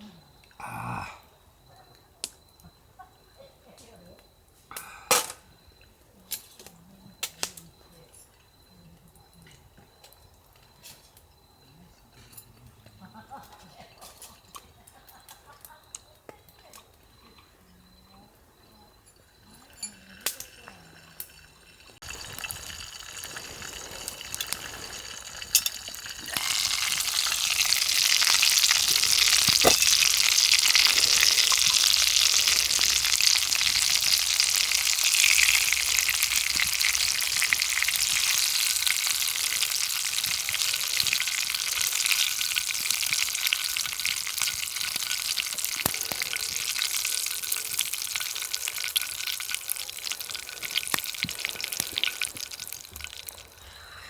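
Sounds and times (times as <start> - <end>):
food sizzling in frying pan: 19.9 - 53.6.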